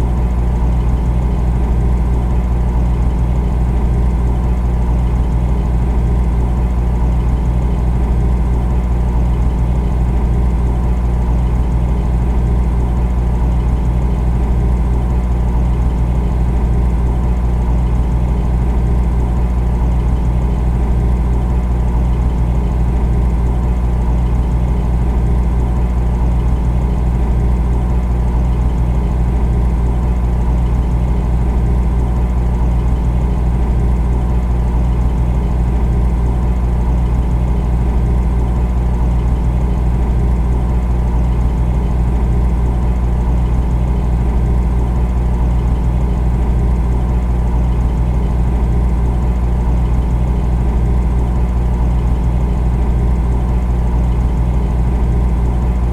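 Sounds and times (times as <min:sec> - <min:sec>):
refrigerator humming: 0:00.0 - 0:55.9.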